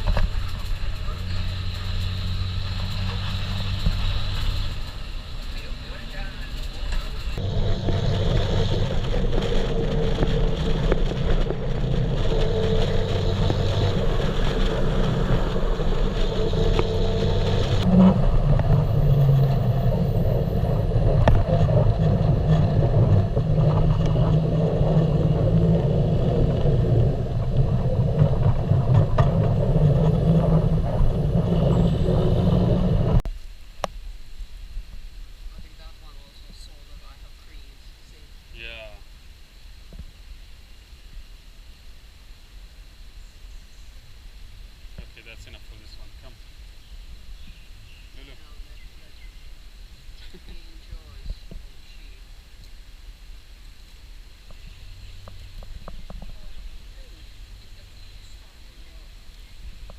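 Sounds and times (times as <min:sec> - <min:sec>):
vehicle engine drone: 0:00.0 - 0:33.3, 0:53.8 - 0:59.9.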